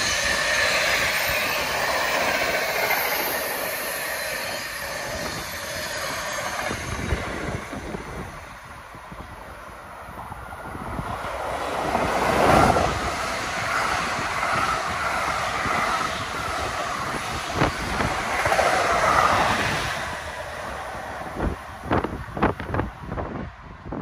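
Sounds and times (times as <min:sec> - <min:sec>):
train wheels rushing on rails: 0:00.0 - 0:23.5.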